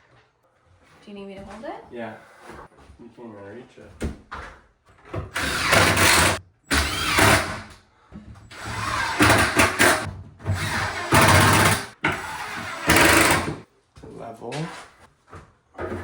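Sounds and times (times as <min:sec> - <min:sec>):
cordless drill driving screws: 0:05.3 - 0:07.8, 0:08.5 - 0:13.6.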